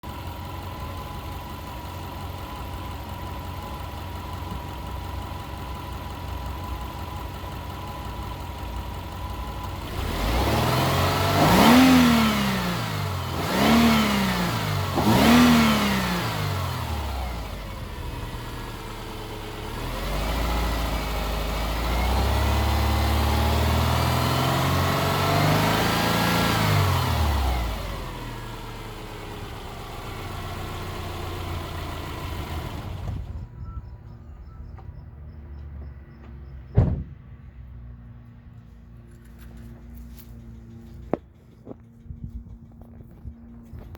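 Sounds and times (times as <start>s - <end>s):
car engine idling and revving: 0.0s - 43.9s.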